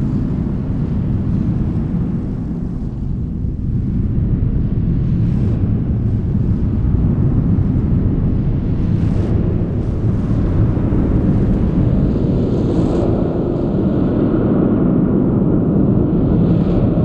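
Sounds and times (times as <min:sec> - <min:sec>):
dense low rumble of spring: 0:00.0 - 0:12.4.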